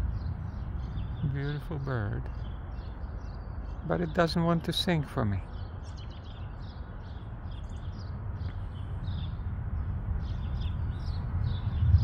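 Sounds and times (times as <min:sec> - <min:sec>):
steady low rumble: 0:00.0 - 0:03.7, 0:07.0 - 0:12.0
songbirds chirping: 0:00.0 - 0:12.0.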